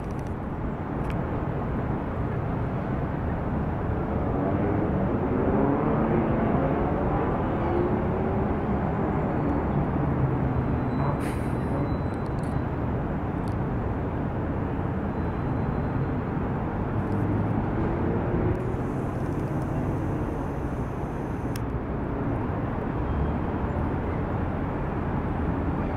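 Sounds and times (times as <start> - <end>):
car and truck engines idling: 18.6 - 21.6.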